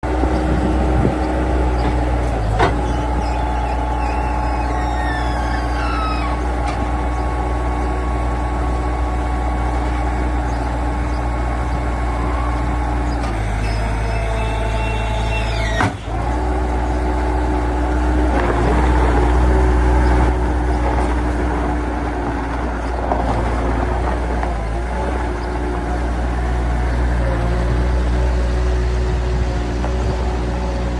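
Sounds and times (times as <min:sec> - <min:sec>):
skid steer diesel engine running: 0:00.0 - 0:30.9
whine sliding down in pitch: 0:02.8 - 0:06.5.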